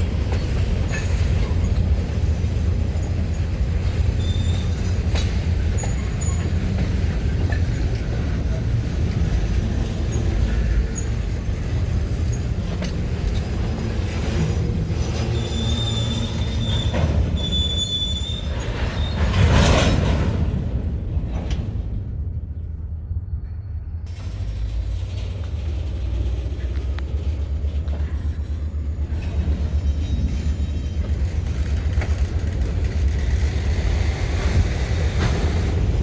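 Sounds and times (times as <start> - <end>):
train wheels rumbling: 0.0 - 36.0
high wheel squeal: 2.8 - 6.8, 10.0 - 20.0, 25.9 - 32.2
sharp clicks on rails: 31.1 - 36.0.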